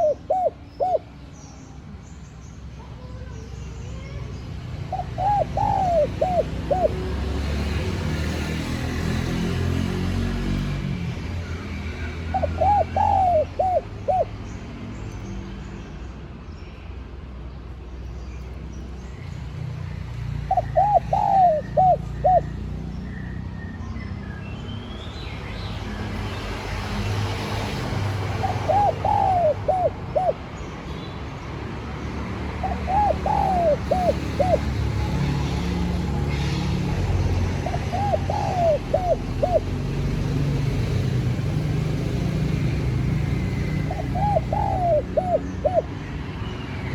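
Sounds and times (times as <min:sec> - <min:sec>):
dove cooing: 0:00.0 - 0:01.2, 0:04.9 - 0:07.1, 0:12.3 - 0:14.4, 0:20.5 - 0:22.6, 0:28.2 - 0:30.5, 0:32.6 - 0:35.4, 0:37.5 - 0:39.8, 0:43.5 - 0:46.0.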